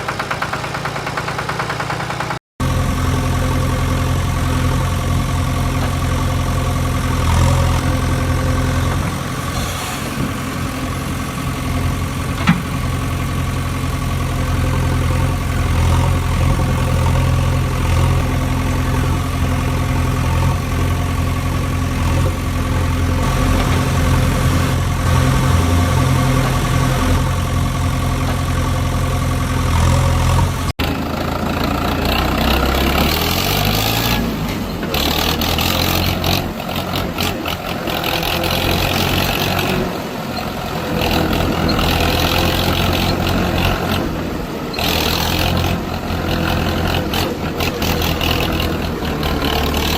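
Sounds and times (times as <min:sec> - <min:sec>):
heavy vehicle engine idling: 0:00.0 - 0:49.9
engine rising in pitch: 0:02.6 - 0:49.9.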